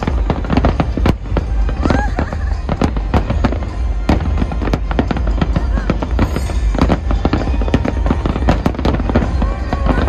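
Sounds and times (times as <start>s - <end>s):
fireworks bangs and crackles: 0.0s - 10.0s
music: 0.0s - 10.0s.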